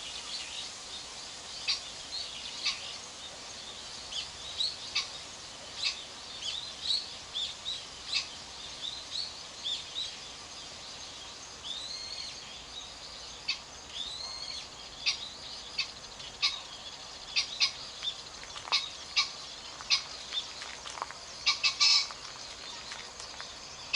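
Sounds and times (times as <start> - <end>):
small stream rushing: 0.0 - 23.9
small birds chirping: 1.5 - 23.9
pheasant harsh crow: 21.5 - 22.1.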